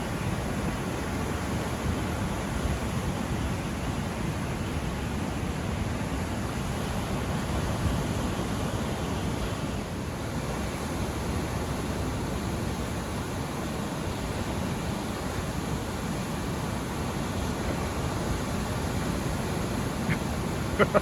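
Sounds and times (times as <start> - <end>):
waves breaking: 0.1 - 21.0.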